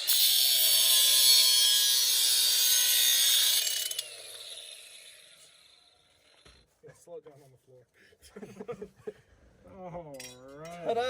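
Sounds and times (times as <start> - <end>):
angle grinder cutting metal: 0.0 - 6.5.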